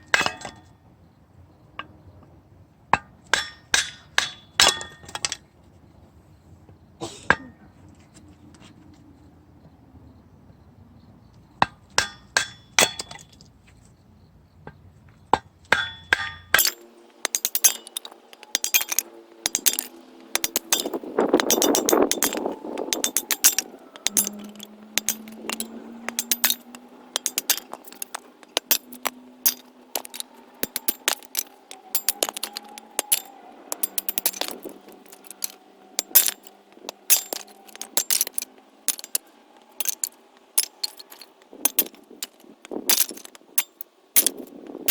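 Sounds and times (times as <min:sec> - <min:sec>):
hammer knocks and metallic clinks: 0:16.2 - 0:44.9.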